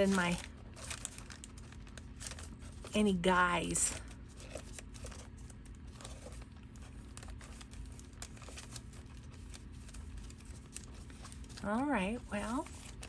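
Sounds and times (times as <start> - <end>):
paper rustling and crinkling: 0.0 - 13.0.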